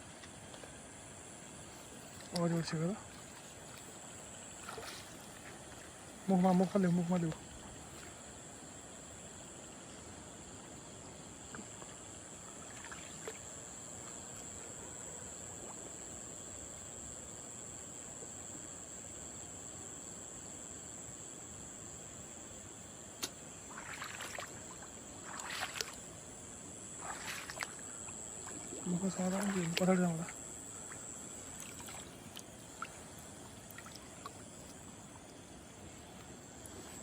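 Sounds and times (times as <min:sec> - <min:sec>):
water splashing and sloshing: 0:00.0 - 0:08.7, 0:11.1 - 0:14.5, 0:23.2 - 0:37.0
high-pitched insect chorus: 0:00.0 - 0:37.0
low background hiss: 0:00.0 - 0:37.0
sharp click: 0:23.2 - 0:23.4.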